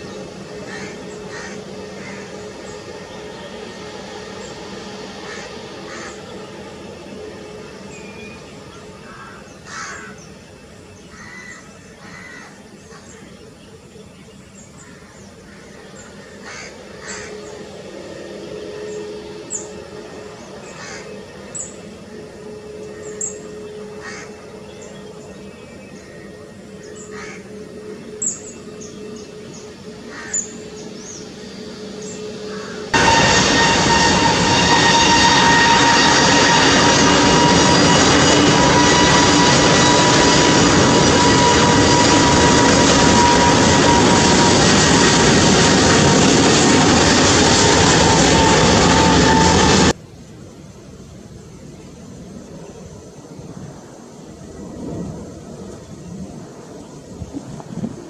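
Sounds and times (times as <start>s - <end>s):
crows calling: 0.0s - 2.9s, 5.1s - 6.5s, 8.7s - 10.4s, 11.0s - 13.3s, 14.7s - 17.6s, 20.6s - 21.8s, 23.0s - 25.1s, 26.8s - 28.5s, 29.3s - 31.2s, 32.2s - 45.9s.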